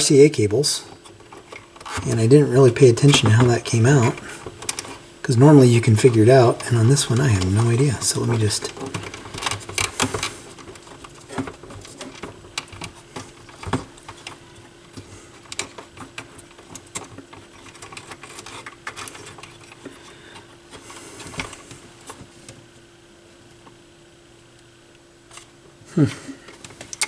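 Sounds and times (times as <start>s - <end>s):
faint hum: 0.0s - 27.0s
small parts clicking and knocking: 6.0s - 22.2s.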